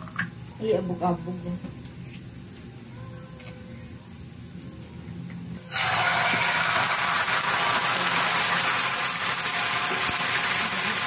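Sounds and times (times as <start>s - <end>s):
food sizzling in a hot pan: 5.7s - 11.0s.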